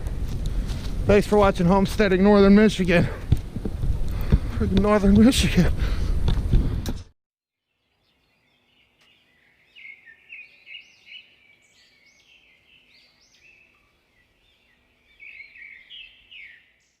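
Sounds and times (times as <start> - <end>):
songbird chirping: 7.6 - 17.0.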